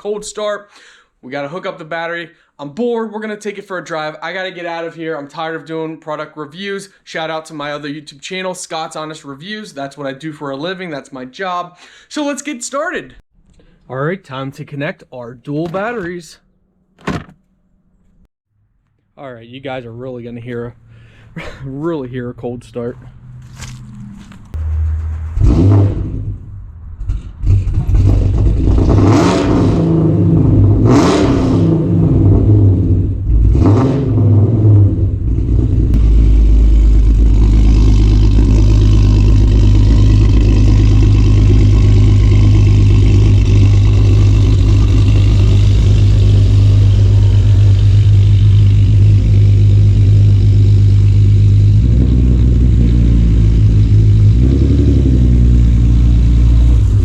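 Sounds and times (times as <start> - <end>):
car engine starting and revving: 23.0 - 57.0
loud car engine idle: 36.0 - 54.4.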